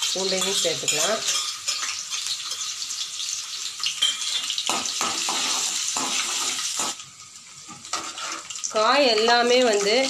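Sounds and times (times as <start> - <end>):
garlic sizzling in hot oil: 0.0 - 10.0
metal spatula scraping pan: 7.8 - 8.6.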